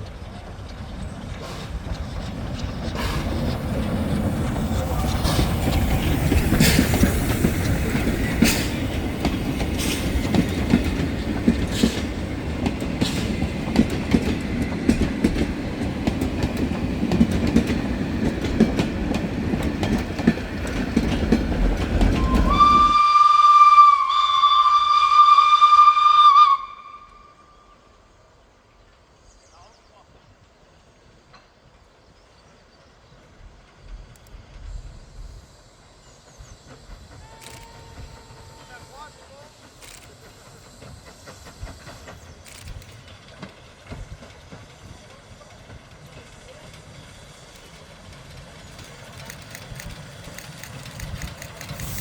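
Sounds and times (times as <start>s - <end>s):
train wheels rumbling and clicking: 0.0s - 23.0s, 33.2s - 52.0s
train whistle: 22.1s - 28.0s, 37.2s - 40.0s.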